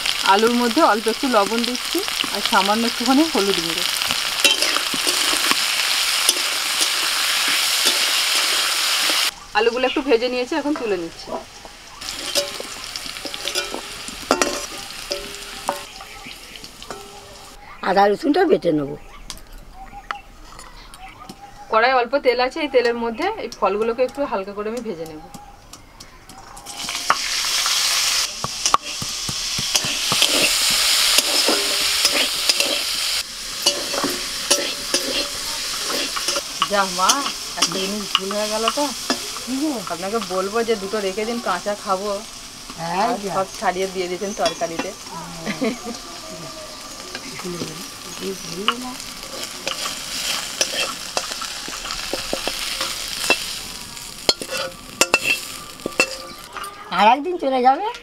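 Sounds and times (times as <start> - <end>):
fruit sizzling in hot oil: 0.0 - 18.3, 26.3 - 57.9
metal spatula scraping pan: 3.9 - 9.3, 12.1 - 15.9, 28.2 - 39.4, 48.7 - 53.6, 54.2 - 56.8.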